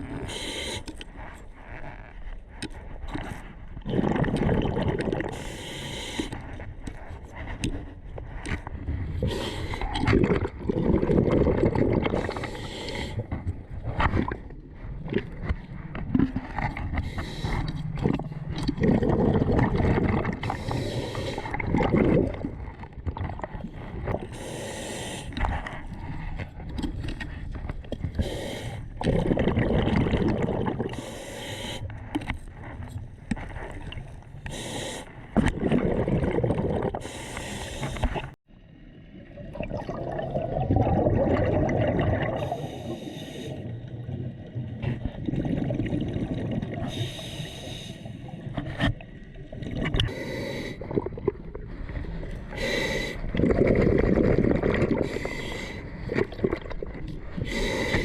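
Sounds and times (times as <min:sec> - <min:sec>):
breathing through a snorkel: 0:00.1 - 0:02.2, 0:03.9 - 0:16.0, 0:16.8 - 0:22.6, 0:24.0 - 0:26.4, 0:28.0 - 0:32.8, 0:33.4 - 0:38.4, 0:42.2 - 0:43.9, 0:46.7 - 0:49.0, 0:50.0 - 0:56.6, 0:57.2 - 0:58.0
water gurgling and splashing: 0:01.2 - 0:31.3, 0:32.1 - 0:58.0.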